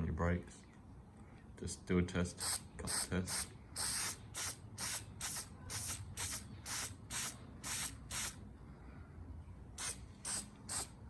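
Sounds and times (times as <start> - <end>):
aerosol spray bursts: 2.4 - 8.4, 9.8 - 11.0.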